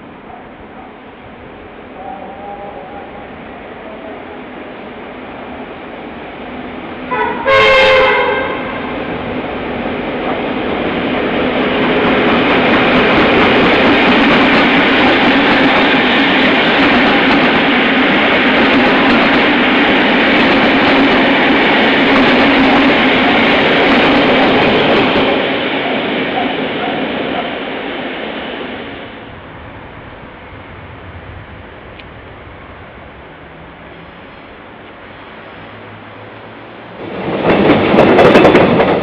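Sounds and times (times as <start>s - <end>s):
train running noise: 0.0s - 39.0s
locomotive horn blast: 7.1s - 8.9s.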